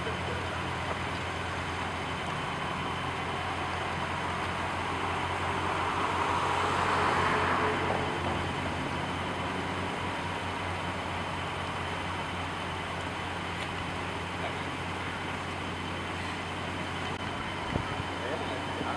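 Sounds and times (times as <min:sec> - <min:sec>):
engine idling: 0:00.0 - 0:18.9.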